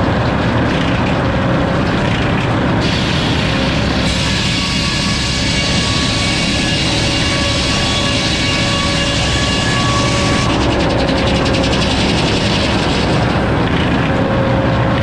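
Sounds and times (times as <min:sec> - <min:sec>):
saw cutting through log: 0:02.8 - 0:13.7.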